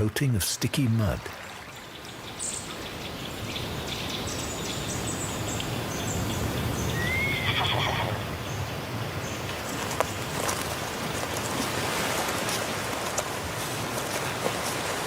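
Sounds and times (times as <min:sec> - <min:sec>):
horse neighing: 0:06.9 - 0:08.3.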